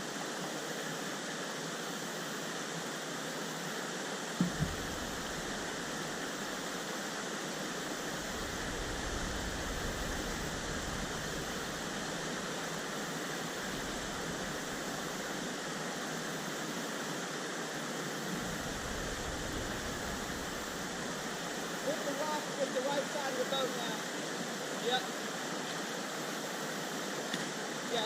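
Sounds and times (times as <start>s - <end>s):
river rapids rushing: 0.1s - 28.0s
brief knocks: 4.4s - 5.0s.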